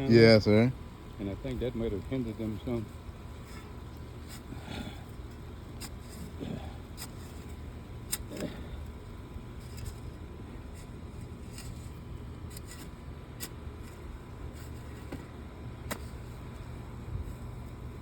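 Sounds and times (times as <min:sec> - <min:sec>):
shovel scraping soil: 0:09.6 - 0:15.1.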